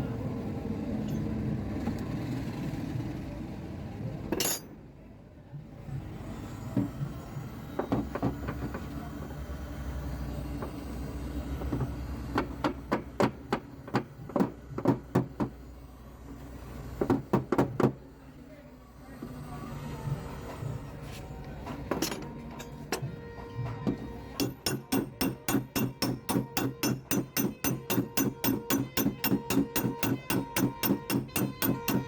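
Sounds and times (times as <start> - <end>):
hammer tapping sheet metal: 24.4 - 32.0.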